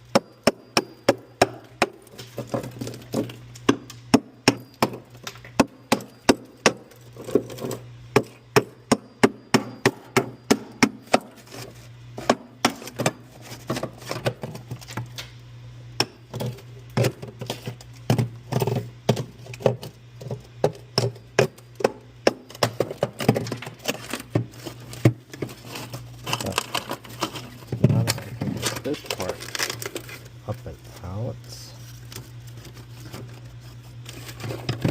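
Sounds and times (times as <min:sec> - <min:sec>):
refrigerator hum: 0:00.0 - 0:34.9
knocks inside a freezer: 0:08.1 - 0:11.3.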